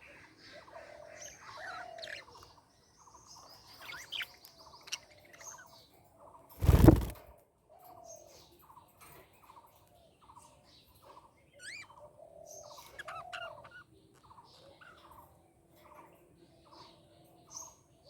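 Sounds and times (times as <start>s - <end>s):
budgerigars chirping: 12.6s - 15.1s.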